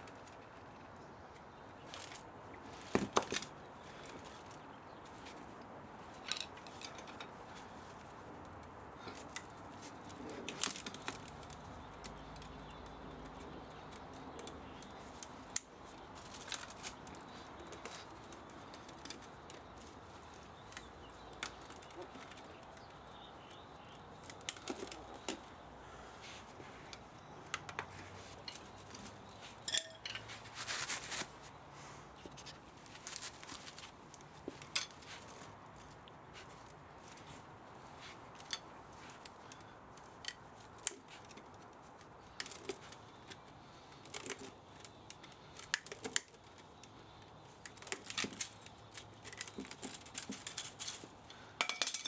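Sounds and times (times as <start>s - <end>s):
hand tools clicking on metal: 29.7s - 30.3s.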